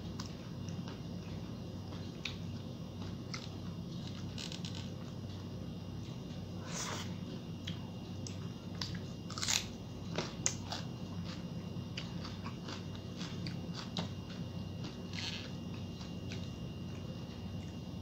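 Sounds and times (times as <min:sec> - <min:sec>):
low hum: 0:00.0 - 0:18.0
chewing crisp food: 0:00.1 - 0:04.4, 0:07.6 - 0:17.9.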